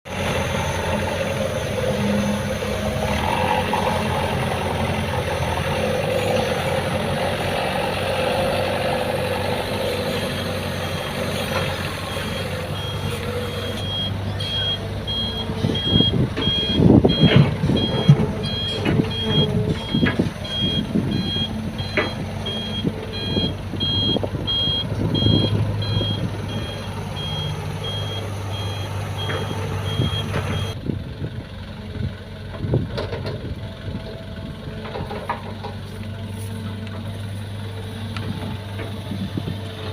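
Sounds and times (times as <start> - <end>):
excavator diesel engine: 0.0 - 39.9
reversing alarm beeping: 9.9 - 30.8
heavy clunks and knocks: 15.1 - 23.4.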